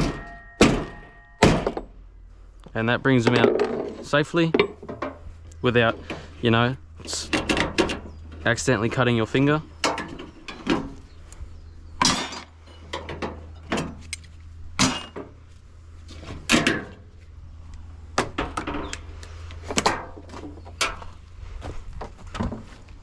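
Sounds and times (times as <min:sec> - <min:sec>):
sharp metal knocks and clanks: 0:00.0 - 0:02.0, 0:03.2 - 0:05.2, 0:07.1 - 0:08.4, 0:09.8 - 0:11.0, 0:12.0 - 0:15.4, 0:16.4 - 0:17.1, 0:19.7 - 0:21.1.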